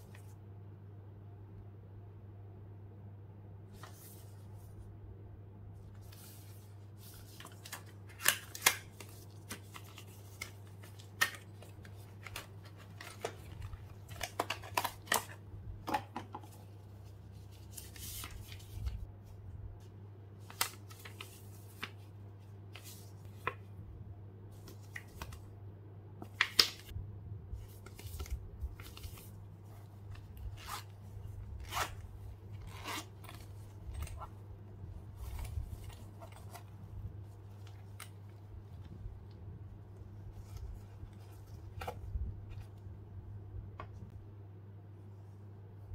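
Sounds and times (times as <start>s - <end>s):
paper rustling: 3.8s - 4.7s, 5.9s - 15.4s, 16.4s - 19.1s, 20.4s - 23.6s, 27.6s - 34.4s, 35.0s - 39.3s, 40.1s - 42.8s
steady low hum: 15.2s - 26.3s, 26.9s - 45.9s.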